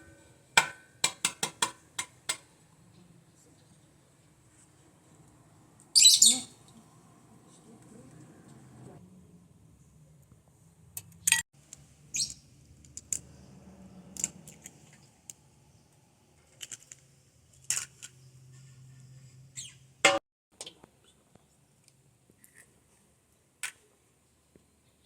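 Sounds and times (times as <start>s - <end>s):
sharp clicks and knocks: 0.6s - 2.5s
high bird chirps: 6.0s - 6.6s, 12.1s - 12.4s, 19.6s - 19.8s.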